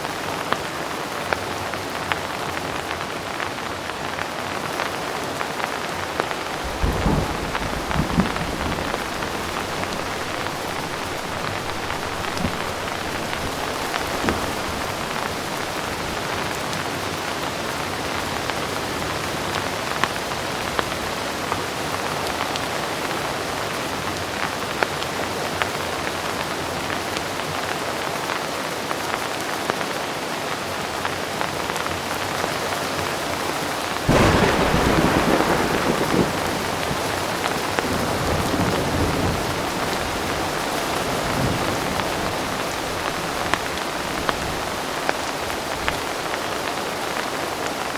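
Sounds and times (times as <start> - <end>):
heavy rain: 0.0 - 47.9
thunderclap rumbling: 5.9 - 16.8, 34.1 - 46.6.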